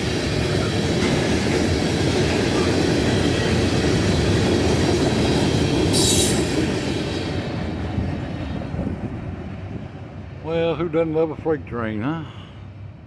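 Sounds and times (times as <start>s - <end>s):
freight train wheels rumbling: 0.0s - 13.0s
high-pitched wheel screech: 6.0s - 6.6s.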